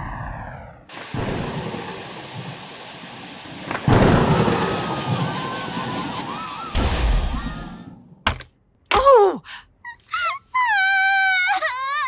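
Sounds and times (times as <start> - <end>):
steady rain: 0.9 - 6.7
thunder clap and rumble: 0.9 - 7.4.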